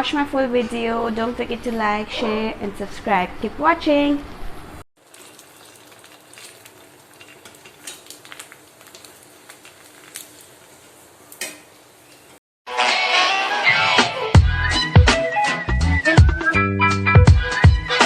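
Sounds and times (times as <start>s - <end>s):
music: 12.7s - 18.0s.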